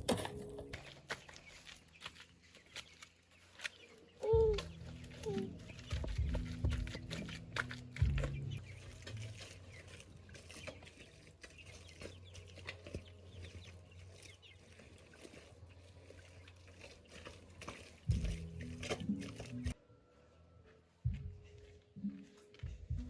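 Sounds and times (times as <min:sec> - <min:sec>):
chickens clucking: 0:02.8 - 0:14.6.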